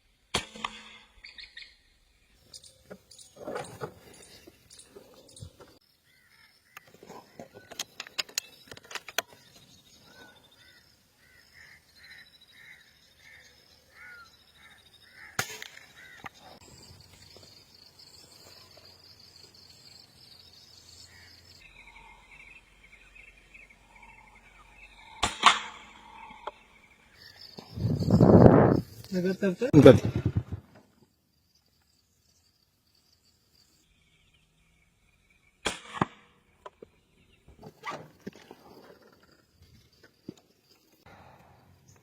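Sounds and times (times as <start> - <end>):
birds calling: 0.6 - 30.5
air rifle firing: 25.2 - 25.9.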